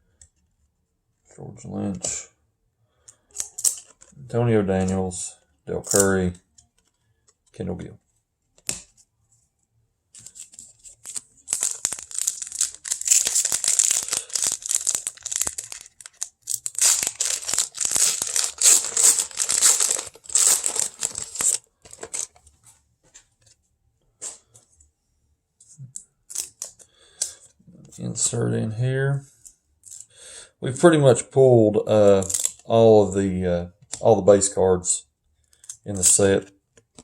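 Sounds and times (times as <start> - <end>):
wrapper crinkling and tearing: 10.2 - 22.3.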